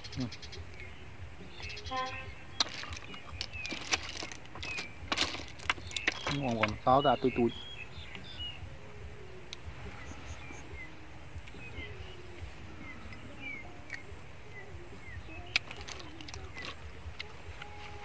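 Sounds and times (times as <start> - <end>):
small birds chirping: 0.0 - 18.0
steady low rumble: 7.5 - 15.6
sharp clicks: 15.4 - 17.8.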